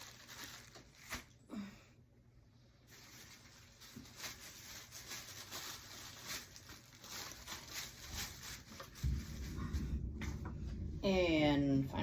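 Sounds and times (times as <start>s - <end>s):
tissue paper rustling: 0.0s - 1.4s, 2.8s - 10.4s.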